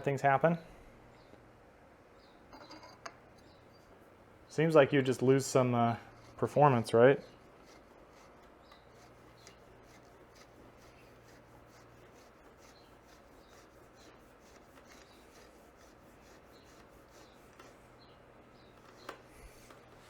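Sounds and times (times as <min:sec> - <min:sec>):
rubbing and handling noises: 0:05.4 - 0:20.0.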